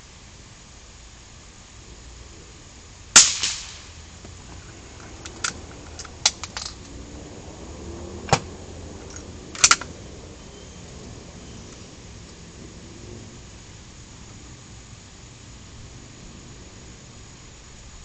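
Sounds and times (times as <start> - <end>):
gunshots: 3.2 - 3.9.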